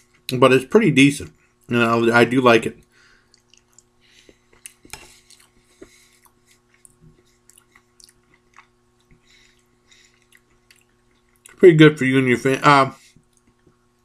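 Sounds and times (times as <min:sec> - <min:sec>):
faint steady hum: 0:00.0 - 0:14.0
wet chewing sounds: 0:03.2 - 0:11.6.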